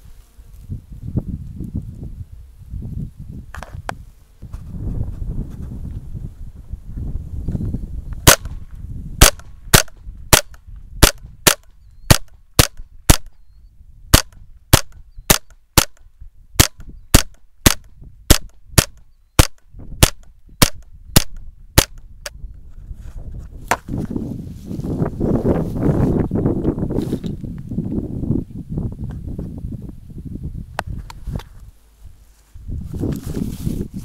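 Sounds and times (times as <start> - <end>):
rifle shots cracking: 8.2 - 8.6, 9.2 - 13.3, 16.6 - 21.9.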